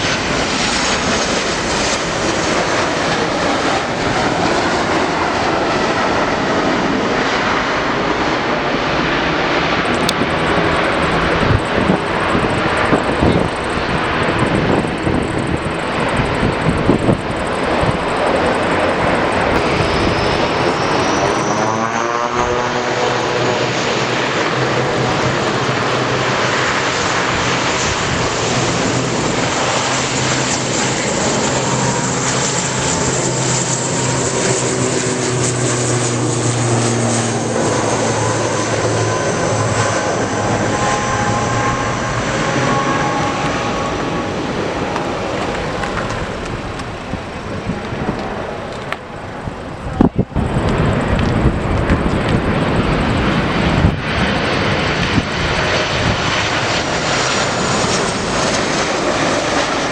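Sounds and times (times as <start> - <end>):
jet airplane engines passing: 0.0 - 59.9.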